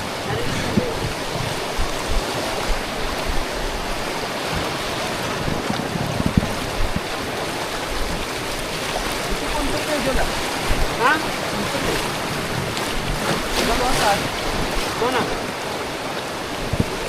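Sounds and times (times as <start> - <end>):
rushing river water: 0.0 - 17.0
low thumps on microphone: 0.4 - 3.8, 5.4 - 7.2, 10.7 - 11.0, 16.7 - 17.0.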